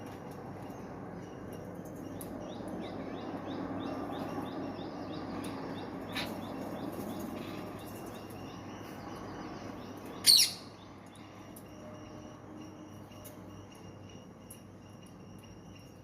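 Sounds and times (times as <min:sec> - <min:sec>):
background hum: 0:00.0 - 0:16.0
parrot chirping: 0:10.2 - 0:10.8.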